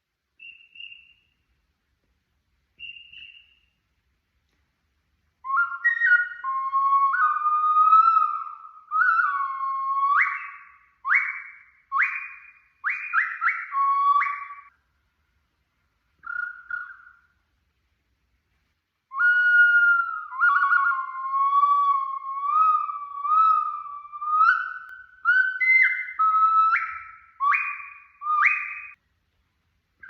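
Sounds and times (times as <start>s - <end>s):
clay bird whistle notes: 0.4s - 1.4s, 2.8s - 3.8s, 5.4s - 14.7s, 19.1s - 29.0s.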